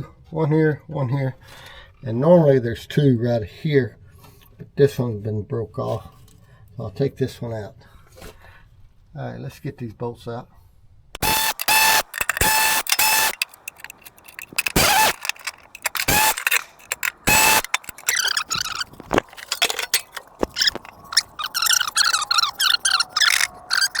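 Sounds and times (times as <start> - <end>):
metallic clicking and rattling: 11.2 - 24.0
power tool whining: 11.2 - 24.0.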